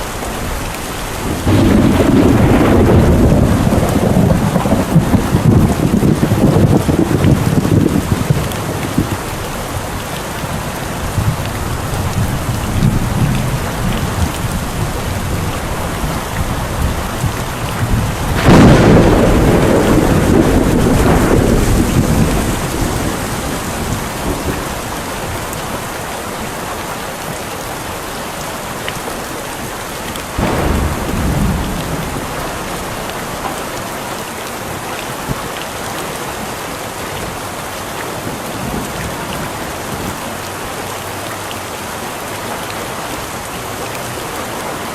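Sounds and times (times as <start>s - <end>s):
steady rain: 0.0s - 44.9s
thunderclap: 1.2s - 9.8s, 10.5s - 25.6s, 30.4s - 33.6s.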